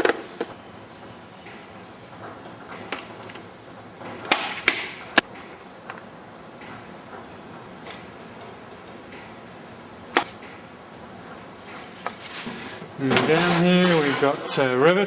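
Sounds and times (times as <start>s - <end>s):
steady low hiss: 0.0s - 15.0s
tools clicking and knocking: 6.6s - 9.4s.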